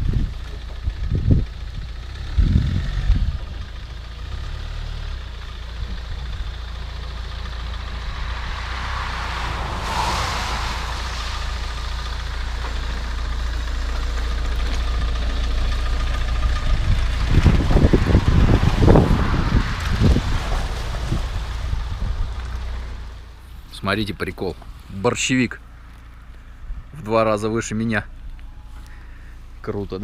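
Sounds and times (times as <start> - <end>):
diesel engine rumbling: 0.0 - 30.0
rushing hiss: 8.0 - 13.4
engine knocks: 10.8 - 23.5.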